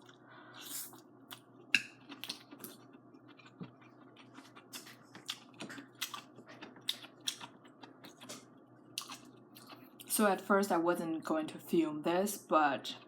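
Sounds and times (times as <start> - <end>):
chewing noodles: 0.0 - 10.1.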